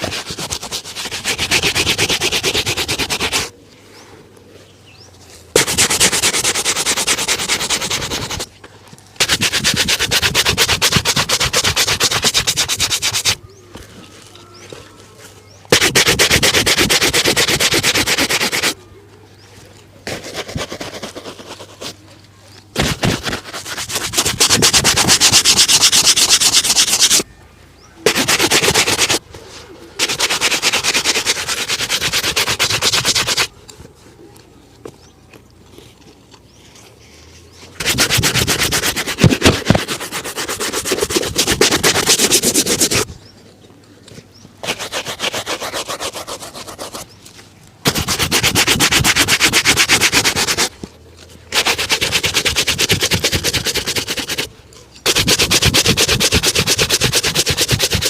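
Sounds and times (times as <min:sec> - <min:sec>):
brush rubbing leather shoe: 0:00.0 - 0:03.5, 0:05.5 - 0:08.5, 0:09.2 - 0:13.4, 0:15.7 - 0:18.8, 0:20.0 - 0:22.2, 0:22.8 - 0:27.2, 0:28.0 - 0:29.2, 0:30.0 - 0:33.6, 0:37.7 - 0:43.1, 0:44.6 - 0:47.2, 0:47.8 - 0:50.8, 0:51.5 - 0:58.0.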